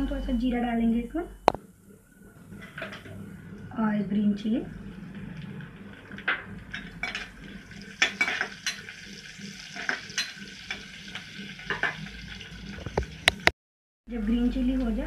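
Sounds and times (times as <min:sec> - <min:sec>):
chillies sizzling in hot oil: 0:04.1 - 0:13.5
steel spoon clinking against pan: 0:08.0 - 0:08.9, 0:09.8 - 0:10.8.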